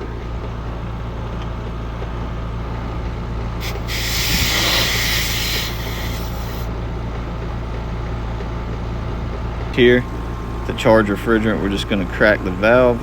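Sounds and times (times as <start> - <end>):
refrigerant hissing from hose: 3.6 - 6.7.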